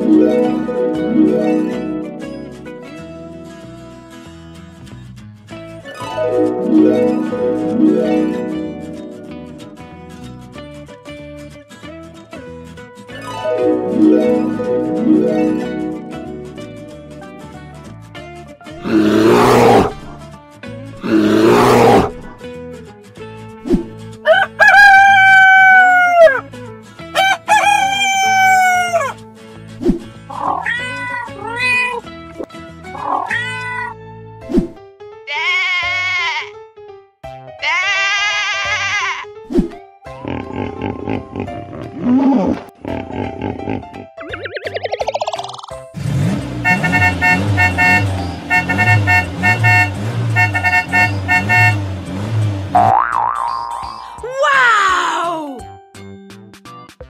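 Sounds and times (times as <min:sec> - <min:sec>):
background music loop: 0:00.0 - 0:03.9, 0:05.9 - 0:10.8, 0:13.1 - 0:19.2, 0:42.8 - 0:46.0, 0:46.6 - 0:57.0
rooster crowing: 0:24.3 - 0:26.4, 0:27.2 - 0:29.2
cat meowing: 0:30.3 - 0:32.0, 0:33.0 - 0:34.0, 0:35.3 - 0:36.5, 0:37.6 - 0:39.2
cartoon car horns tooting: 0:46.0 - 0:53.0.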